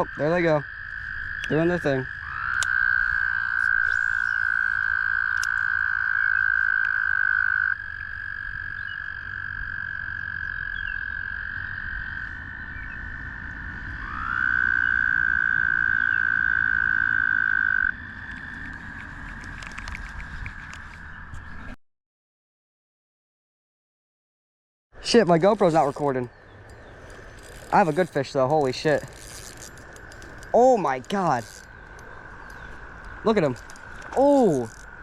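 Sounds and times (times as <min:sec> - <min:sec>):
toad trilling: 0:00.0 - 0:21.0, 0:25.0 - 0:35.0
higher toad trill: 0:25.0 - 0:35.0.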